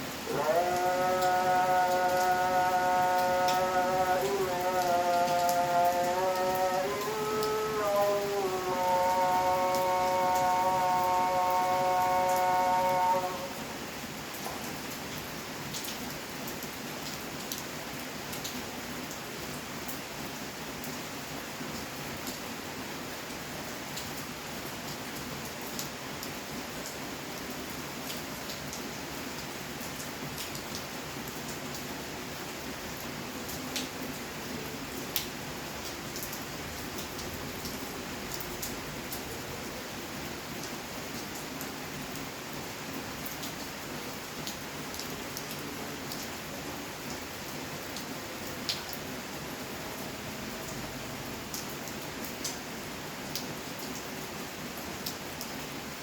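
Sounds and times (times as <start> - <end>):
steady rain falling: 0.0 - 56.0
raindrops tapping on surface: 14.4 - 16.1, 35.1 - 35.4.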